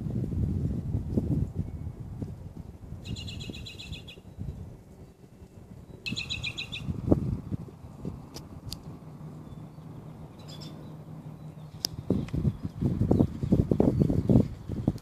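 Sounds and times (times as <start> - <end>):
songbird trilling: 3.0 - 7.8, 9.1 - 14.4
short sharp bird chirps: 6.0 - 6.9.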